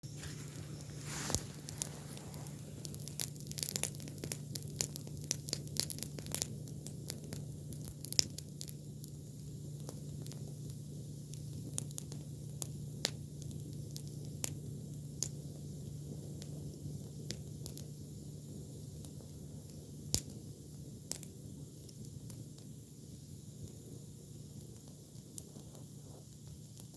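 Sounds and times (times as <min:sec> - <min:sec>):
steady low hum: 0:00.0 - 0:05.6
campfire crackling and popping: 0:00.0 - 0:26.9.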